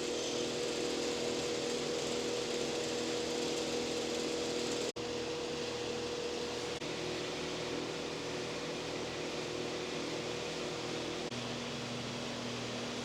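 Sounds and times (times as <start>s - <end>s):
motor-driven machine humming: 0.0s - 7.0s.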